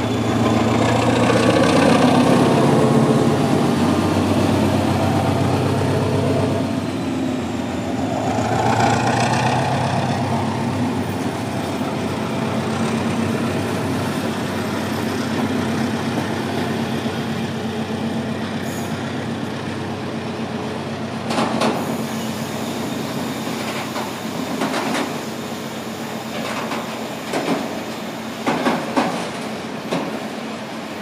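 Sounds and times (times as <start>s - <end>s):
wheels clacking over rail joints: 0.0s - 5.1s, 23.6s - 25.3s, 26.2s - 30.3s
diesel engine hum: 0.0s - 21.6s
train running noise: 0.0s - 31.0s.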